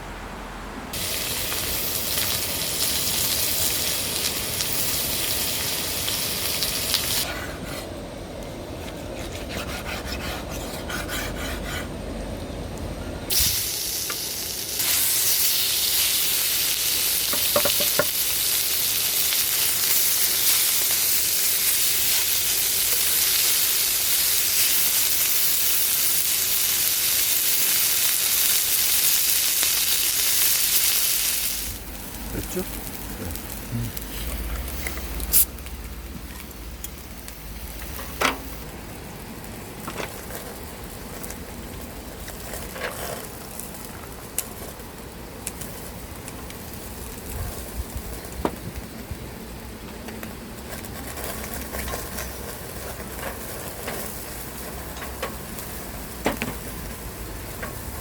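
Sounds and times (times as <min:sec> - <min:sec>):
food sizzling in hot pan: 0:00.9 - 0:07.2, 0:13.3 - 0:38.7.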